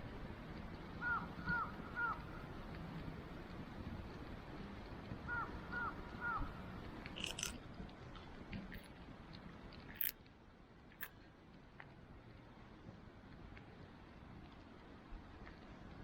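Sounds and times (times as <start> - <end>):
campfire crackling and popping: 0.0 - 16.0
bird calling: 1.0 - 2.2.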